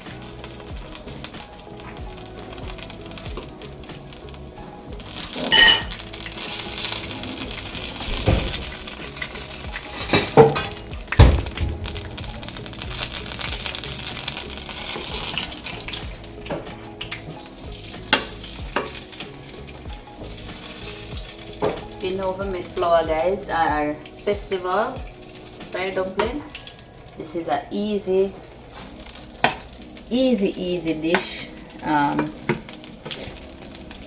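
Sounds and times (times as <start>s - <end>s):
dumplings sizzling in hot oil: 0.0s - 34.0s
ringing clink: 5.5s - 5.9s.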